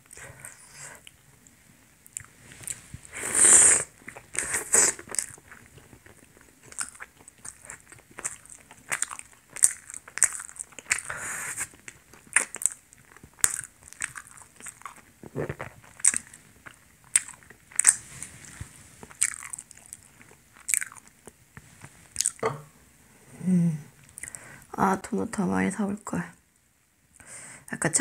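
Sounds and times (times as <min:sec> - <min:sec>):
person biting and chewing: 0:02.2 - 0:21.4, 0:22.2 - 0:22.5.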